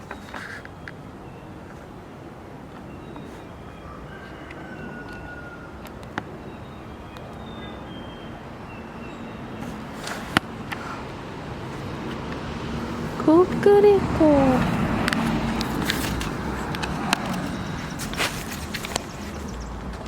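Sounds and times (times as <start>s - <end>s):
whistled bird calls: 6.4s - 9.8s.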